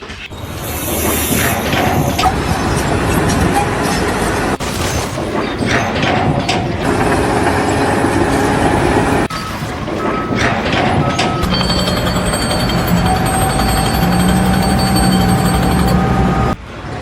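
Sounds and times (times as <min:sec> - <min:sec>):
heavy machinery engine noise: 0:00.3 - 0:16.9
reversing alarm beep: 0:09.2 - 0:16.6.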